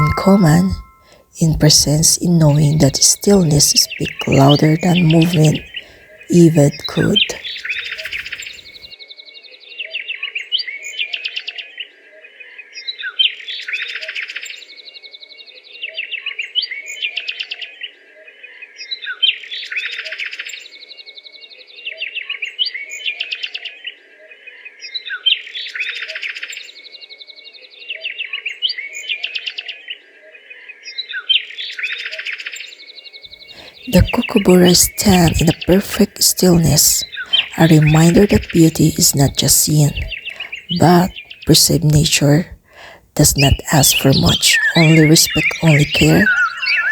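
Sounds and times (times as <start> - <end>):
bird chirping trills: 0.0 - 8.8, 43.2 - 46.9.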